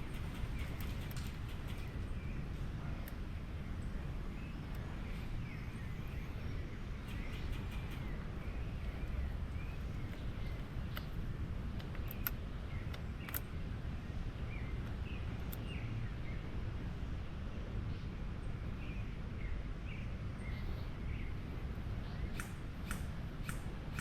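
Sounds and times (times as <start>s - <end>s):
birds chirping: 0.0s - 16.6s, 17.9s - 24.0s
low wind rumble: 0.0s - 24.0s
faint sharp clicks: 10.9s - 11.2s, 11.8s - 13.5s, 22.3s - 24.0s.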